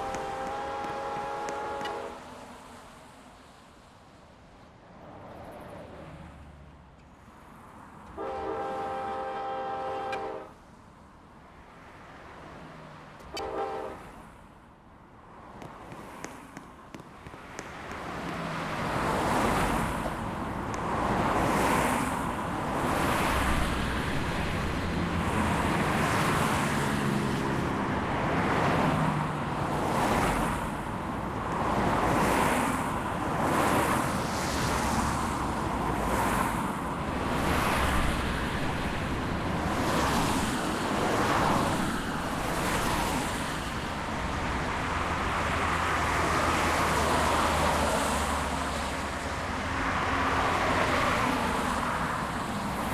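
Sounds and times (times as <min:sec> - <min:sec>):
freight train cars rumbling past: 0:00.0 - 0:02.6, 0:17.4 - 0:52.9.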